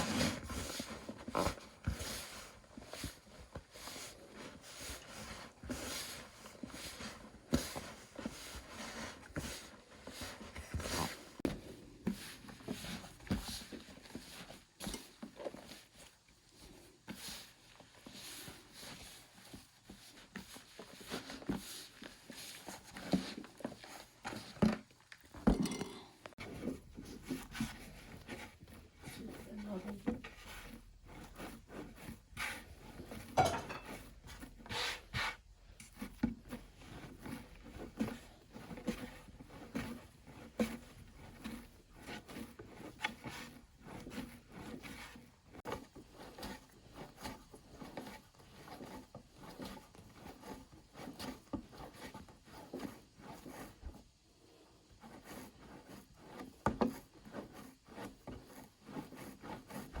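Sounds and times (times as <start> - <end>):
hands rubbing on wood: 26.3 - 60.0.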